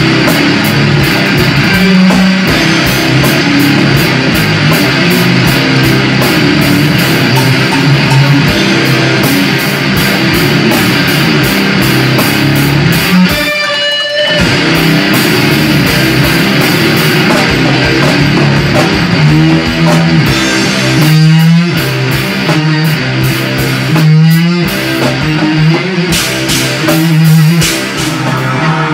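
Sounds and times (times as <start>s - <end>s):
distorted electric guitar riffing: 0.0s - 28.9s
drum kit with cymbal hits: 0.0s - 28.9s
sliding bending guitar notes: 0.0s - 28.9s.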